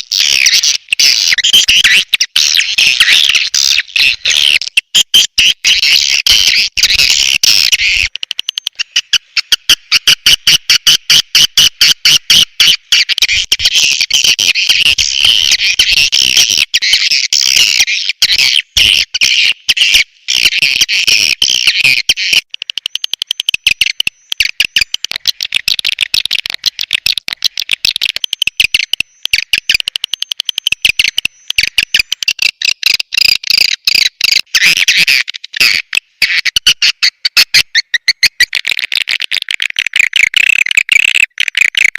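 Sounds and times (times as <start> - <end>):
swiftlets chirping and clicking: 21.5 - 34.5.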